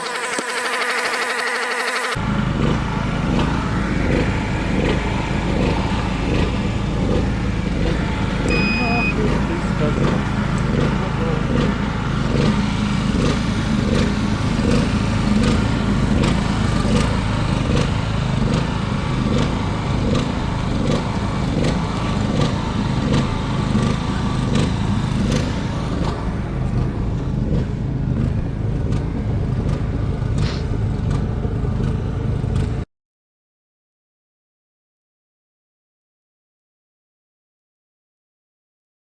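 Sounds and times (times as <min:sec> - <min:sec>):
regular clicking: 0:00.0 - 0:02.2
machine droning: 0:00.0 - 0:32.7.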